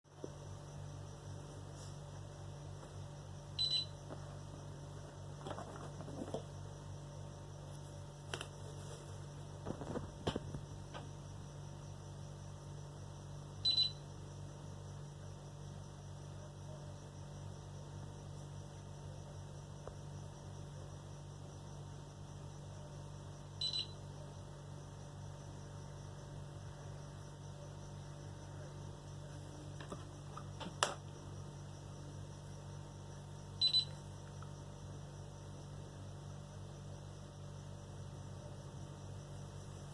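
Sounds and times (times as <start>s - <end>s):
steady electrical hum: 0.1s - 39.9s
high electronic beep: 3.6s - 3.9s.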